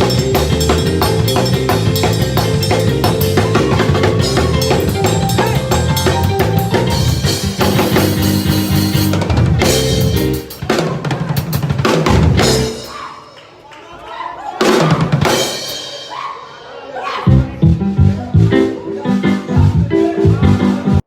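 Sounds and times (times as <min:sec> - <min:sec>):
bass line: 0:00.0 - 0:10.7, 0:12.1 - 0:12.9, 0:17.3 - 0:21.0
rapid snare and bass drum: 0:00.0 - 0:13.1
up-tempo gospel music: 0:00.0 - 0:13.7, 0:14.6 - 0:21.0.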